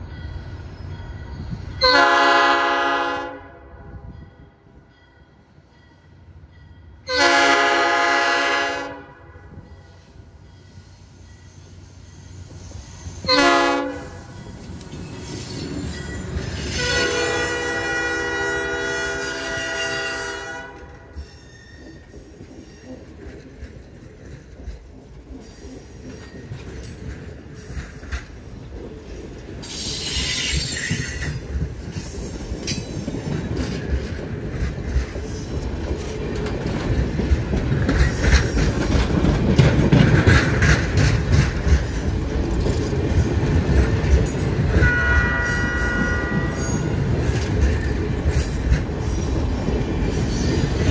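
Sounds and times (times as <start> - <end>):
train wheels rumbling on rails: 0.0 - 50.9
locomotive horn blast: 1.8 - 4.1, 7.1 - 9.6, 13.3 - 14.2, 16.7 - 21.1, 44.7 - 46.9
high wheel squeal: 10.1 - 13.4, 14.4 - 17.1, 21.2 - 23.1, 29.6 - 31.4.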